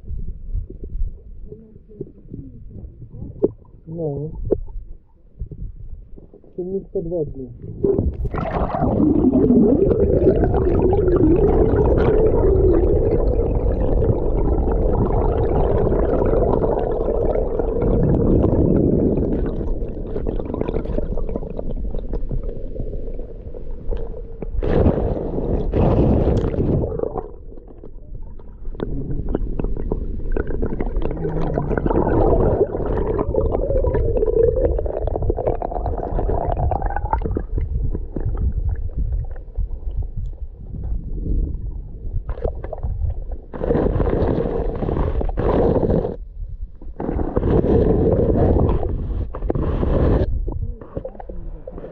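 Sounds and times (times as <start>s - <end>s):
underwater river rumbling and gurgling: 0.0s - 51.9s
water rushing: 7.5s - 22.2s, 24.6s - 37.3s.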